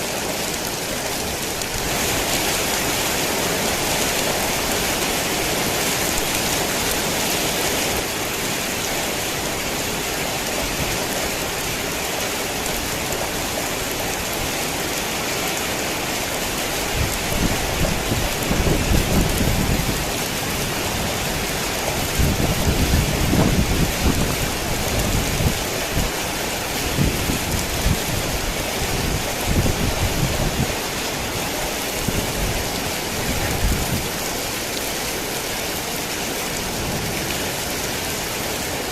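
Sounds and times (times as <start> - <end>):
heavy rain: 0.0 - 38.9
thunder rumbling: 17.0 - 26.2.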